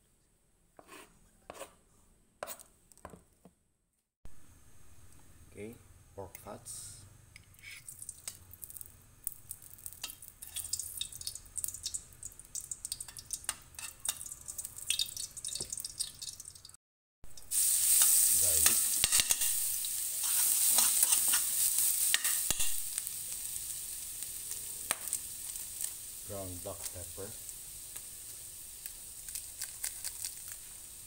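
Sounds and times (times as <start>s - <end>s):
garlic sizzling in a pan: 7.5s - 16.7s, 17.3s - 31.0s
fat crackling and popping: 7.6s - 16.7s, 17.4s - 30.8s.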